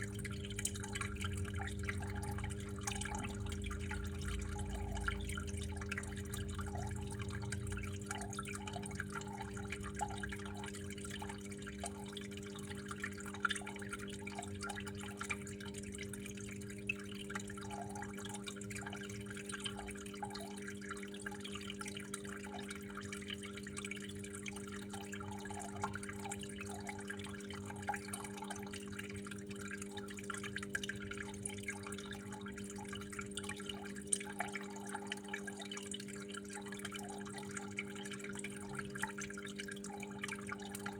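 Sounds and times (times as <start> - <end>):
low hum: 0.0 - 10.7
water trickling and dripping: 0.0 - 40.9.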